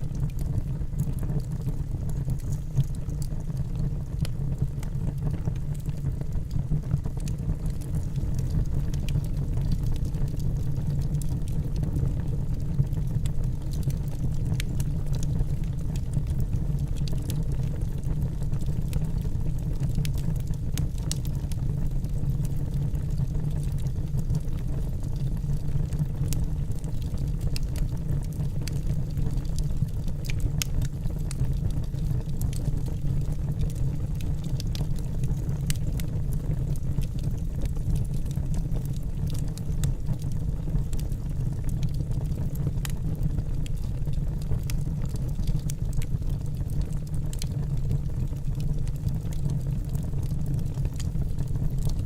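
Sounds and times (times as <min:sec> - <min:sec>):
wood fire burning: 0:00.0 - 0:52.0.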